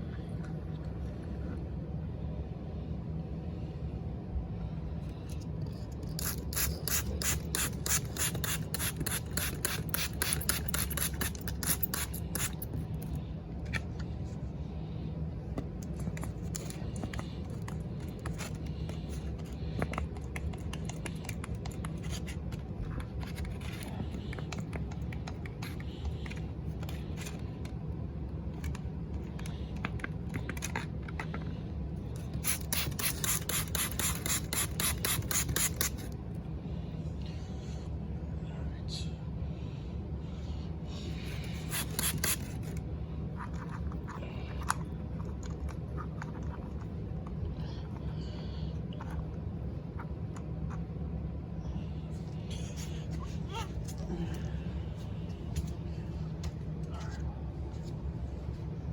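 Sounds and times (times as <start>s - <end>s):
spray bottle squirting: 6.1s - 12.6s, 32.4s - 36.1s, 41.6s - 42.7s.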